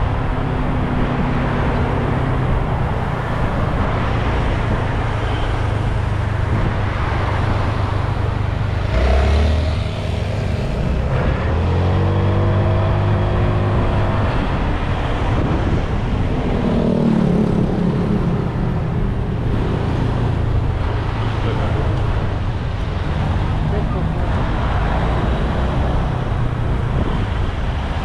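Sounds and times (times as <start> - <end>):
wind rushing over microphone: 0.0 - 28.0.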